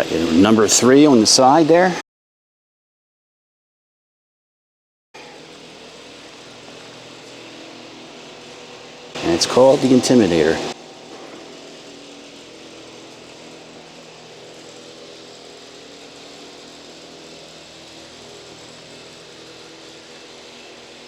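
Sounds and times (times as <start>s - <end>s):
even hiss: 0.0s - 2.0s, 5.2s - 21.0s
mechanical hum with held tones: 5.2s - 21.0s.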